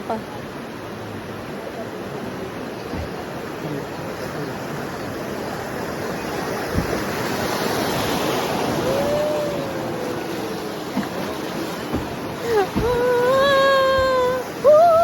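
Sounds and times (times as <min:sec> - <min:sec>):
river water splashing against boat: 0:00.0 - 0:15.0
single knock: 0:11.8 - 0:13.0.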